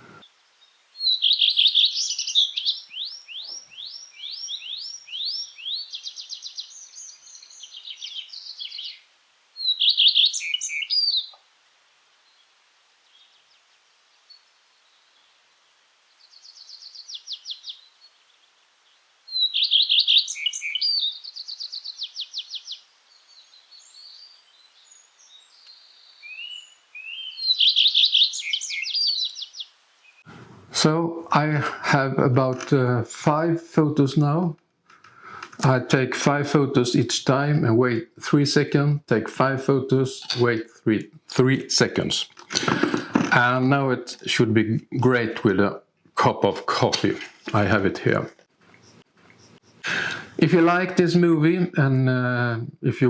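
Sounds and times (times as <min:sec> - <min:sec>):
songbirds trilling and twittering: 0:00.0 - 0:30.4, 0:47.3 - 0:50.4.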